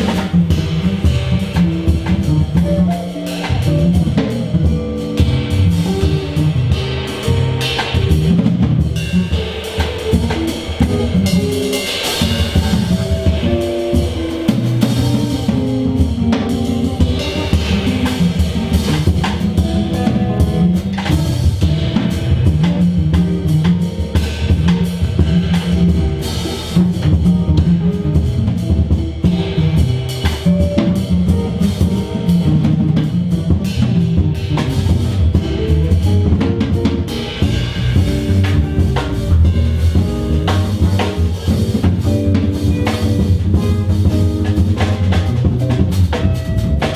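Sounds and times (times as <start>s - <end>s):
drum kit groove: 0.0s - 46.9s
sustained low notes and chords: 33.7s - 46.8s.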